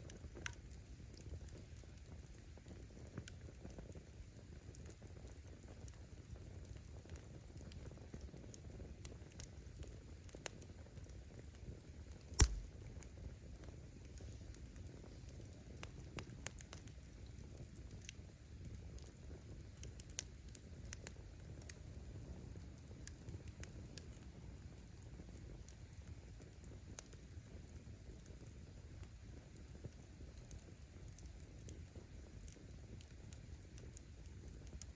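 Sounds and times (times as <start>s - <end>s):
firewood crackling and snapping: 0.0s - 34.9s
low rush of flame: 12.0s - 34.9s.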